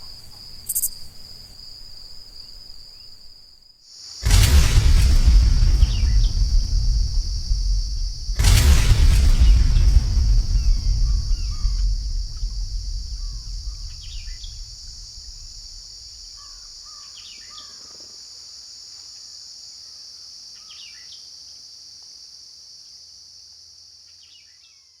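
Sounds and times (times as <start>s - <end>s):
high insect drone: 0.0s - 24.5s
low rumble: 4.2s - 16.7s.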